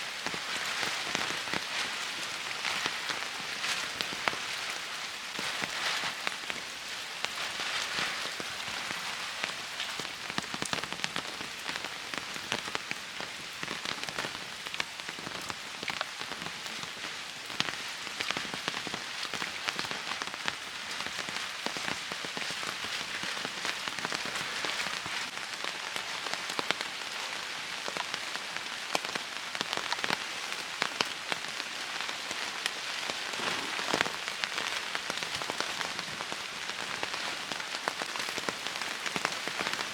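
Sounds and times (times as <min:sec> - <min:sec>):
rain falling: 0:00.0 - 0:39.9
raindrops tapping: 0:32.3 - 0:39.9.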